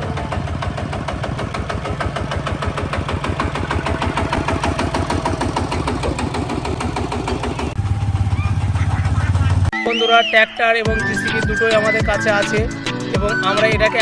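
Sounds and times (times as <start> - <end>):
tractor engine knocking: 0.0 - 9.7.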